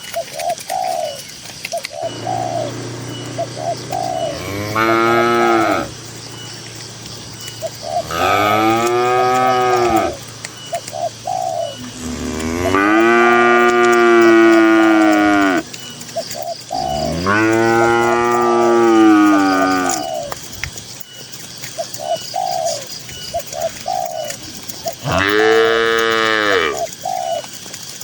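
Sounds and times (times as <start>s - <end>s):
cattle mooing: 2.0s - 10.4s, 11.8s - 15.7s, 16.8s - 20.2s, 25.0s - 26.8s.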